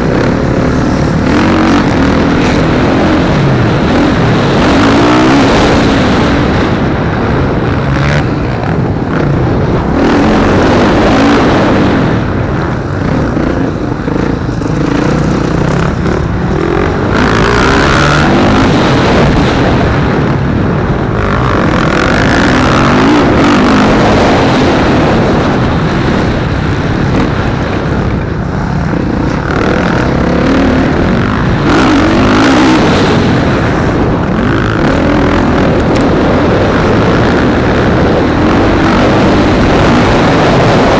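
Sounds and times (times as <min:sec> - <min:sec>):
dirt bike engines revving: 0:00.0 - 0:40.9.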